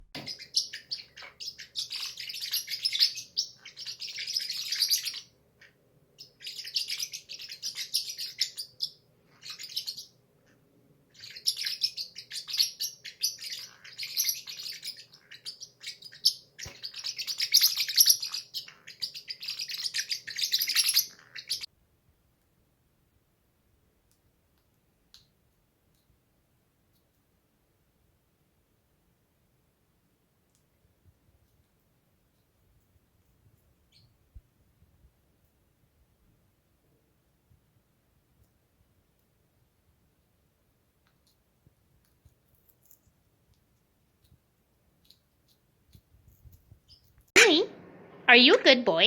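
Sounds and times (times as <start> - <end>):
parrot chattering high chirps: 47.4 - 47.7.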